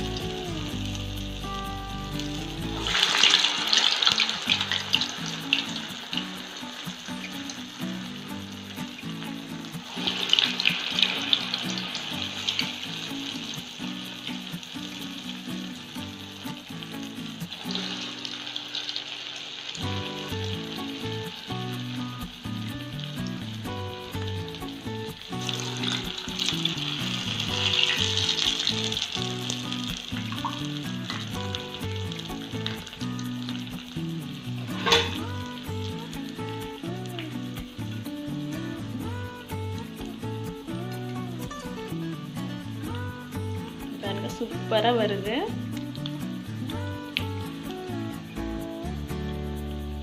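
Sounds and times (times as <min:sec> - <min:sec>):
backing tune with low notes: 0:00.0 - 0:03.3
fritters deep-frying in oil: 0:00.0 - 0:36.3.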